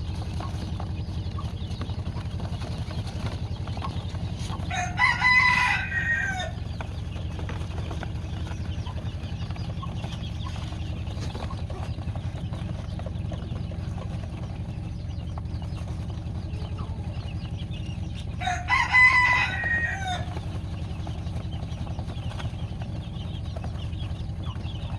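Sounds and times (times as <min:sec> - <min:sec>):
rooster crowing: 0:04.7 - 0:06.6, 0:18.4 - 0:20.4.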